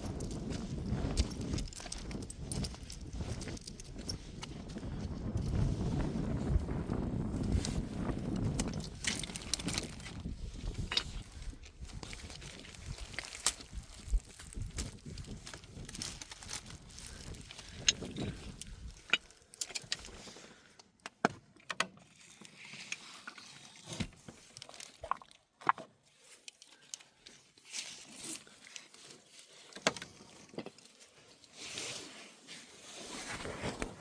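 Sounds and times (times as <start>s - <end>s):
soft rustling: 26.1s - 34.0s.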